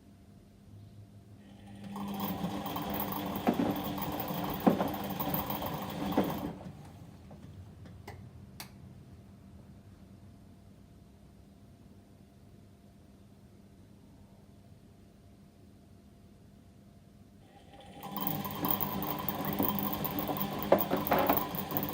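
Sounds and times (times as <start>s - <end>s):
washing machine drum turning: 2.0s - 6.6s, 17.9s - 21.9s.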